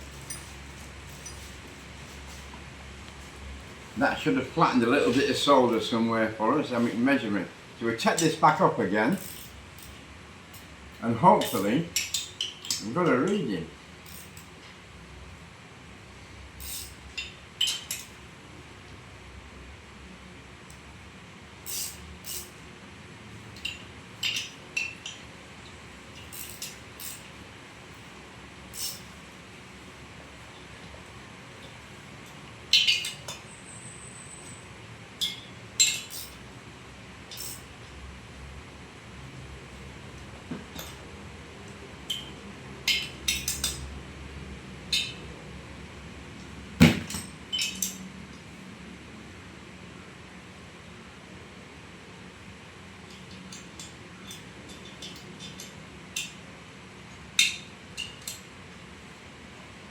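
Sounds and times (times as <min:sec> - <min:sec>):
metallic clinks and scrapes: 0:00.0 - 0:02.6, 0:09.1 - 0:10.7, 0:11.4 - 0:12.9, 0:14.0 - 0:14.6, 0:16.6 - 0:18.2, 0:21.7 - 0:22.6, 0:23.5 - 0:27.4, 0:28.7 - 0:29.2, 0:35.2 - 0:36.4, 0:37.3 - 0:37.7
metallic tool clinks: 0:09.1 - 0:10.0, 0:28.8 - 0:29.1, 0:35.2 - 0:36.4, 0:37.3 - 0:37.7.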